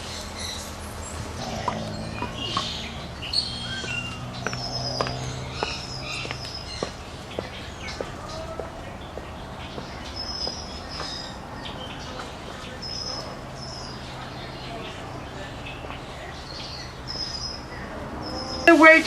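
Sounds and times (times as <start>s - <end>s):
small animals chirping: 1.1s - 11.4s.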